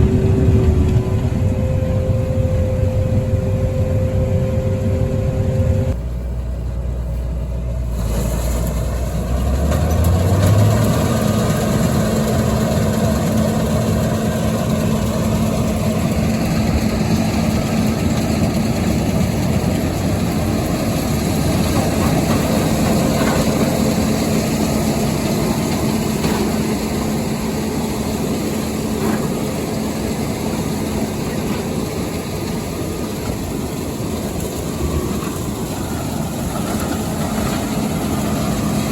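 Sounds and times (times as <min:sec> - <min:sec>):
combine harvester engine running: 0:00.0 - 0:38.9
threshing machinery: 0:07.9 - 0:38.9.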